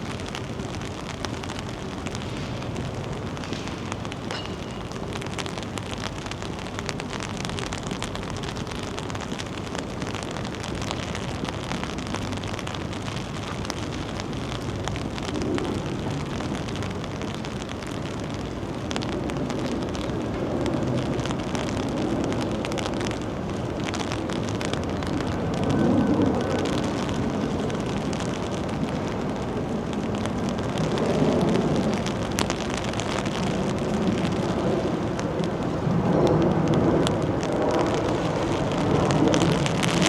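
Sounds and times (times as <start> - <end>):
wind buffeting microphone: 0.0 - 7.8
rain pattering: 0.0 - 40.0.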